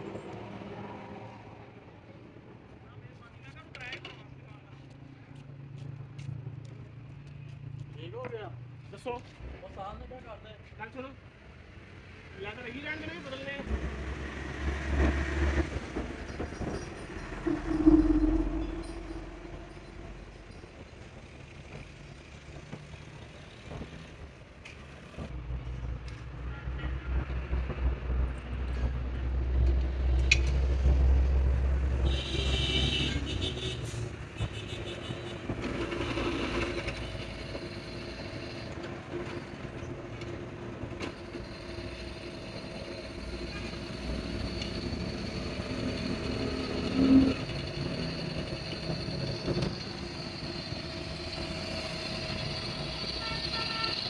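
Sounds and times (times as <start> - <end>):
vehicle engine rumbling: 13.4 - 26.2, 27.0 - 54.0.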